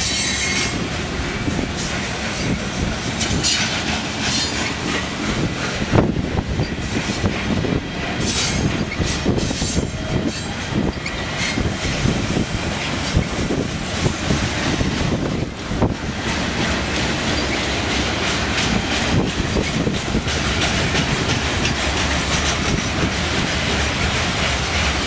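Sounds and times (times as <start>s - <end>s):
train wheels rumbling on rail: 0.0s - 25.0s
high wheel squealing: 8.2s - 12.1s.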